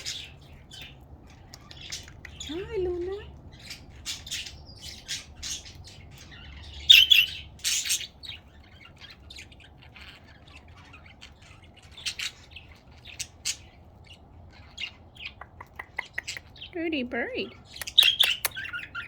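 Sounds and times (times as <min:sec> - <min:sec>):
budgerigars chattering and squawking: 0:00.0 - 0:19.0.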